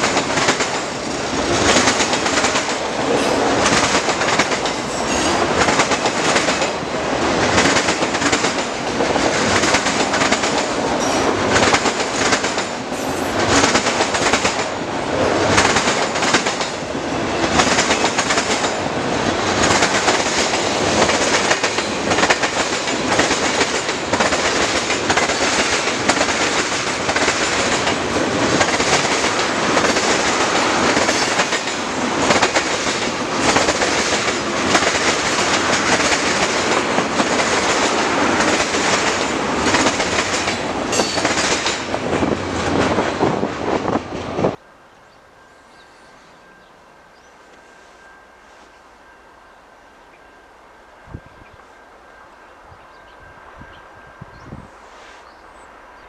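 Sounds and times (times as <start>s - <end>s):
wheels clacking over rail joints: 0.0s - 43.1s
noise of wheels on rail: 0.0s - 56.0s.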